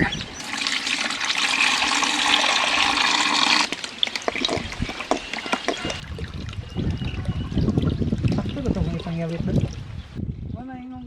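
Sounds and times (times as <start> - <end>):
water running: 0.0 - 6.0
small splashes and clicks: 3.6 - 6.7.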